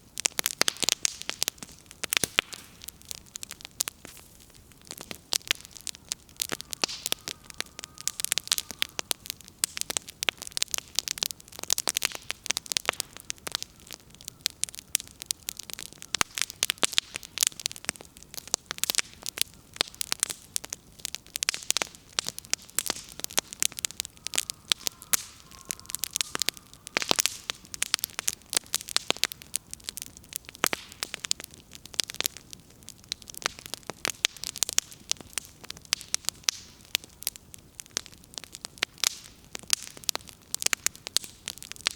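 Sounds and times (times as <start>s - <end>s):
burning firewood crackling: 0.0s - 41.9s.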